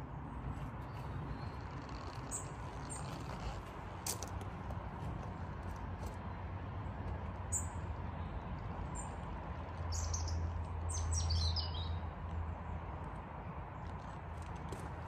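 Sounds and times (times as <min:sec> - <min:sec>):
small birds chirping: 0:00.8 - 0:03.6, 0:07.4 - 0:12.1.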